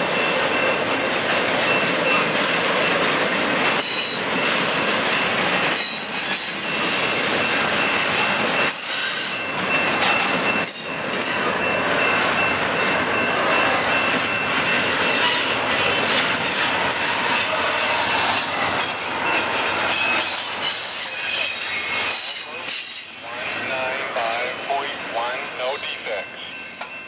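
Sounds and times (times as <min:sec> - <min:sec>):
steel wheels on rail: 0:00.0 - 0:27.0
high wheel squeal: 0:05.1 - 0:11.4, 0:12.0 - 0:24.8.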